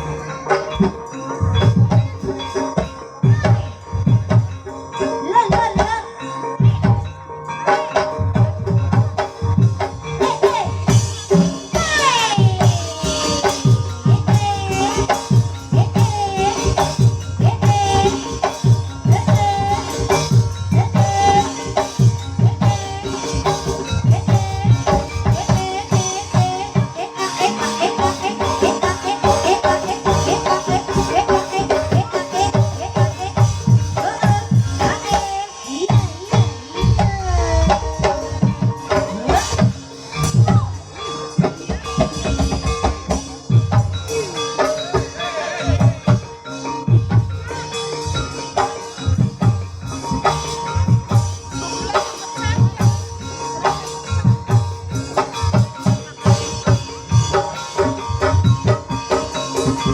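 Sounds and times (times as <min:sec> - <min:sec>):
drum strokes: 0:00.0 - 0:59.9
struck mallet percussion tones: 0:00.0 - 0:59.9
wavering melody: 0:00.0 - 0:59.9
hand drum strokes: 0:27.8 - 0:46.3.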